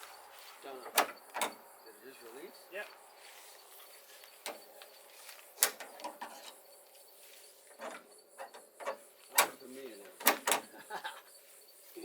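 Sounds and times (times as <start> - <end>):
hood latch metal clicks: 0.9 - 1.6, 5.6 - 6.5, 7.8 - 10.7.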